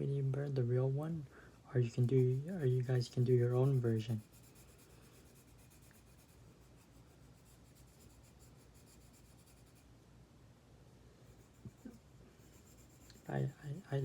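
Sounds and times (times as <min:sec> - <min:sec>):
colouring tool scratching paper: 0:02.0 - 0:09.8, 0:11.3 - 0:14.0.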